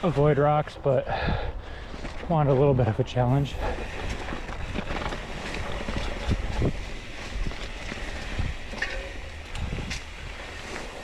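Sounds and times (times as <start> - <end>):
bike tyres rolling over rocks: 0.0 - 1.0, 1.7 - 11.0
wind on microphone: 3.4 - 10.6
bike clattering and knocking: 3.6 - 11.0.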